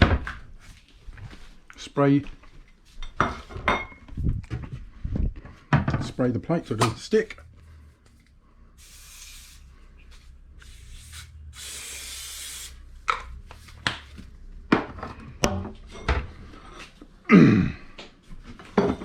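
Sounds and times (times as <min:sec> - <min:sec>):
aerosol spray hissing: 0:08.8 - 0:13.0.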